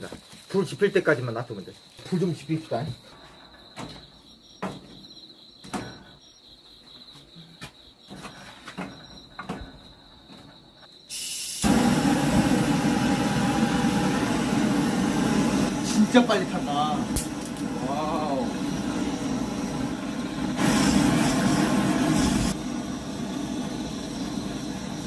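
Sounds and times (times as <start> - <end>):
crickets chirring: 0.0 - 25.0
gas torch rushing: 11.1 - 25.0.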